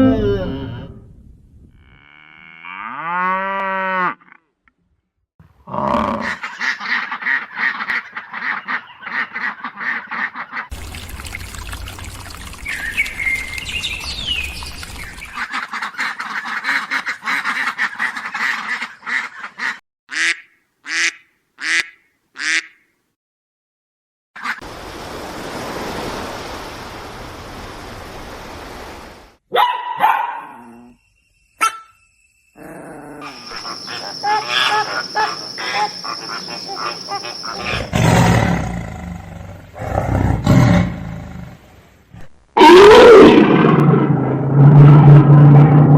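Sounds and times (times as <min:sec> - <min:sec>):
animal calls: 0:32.6 - 0:38.8.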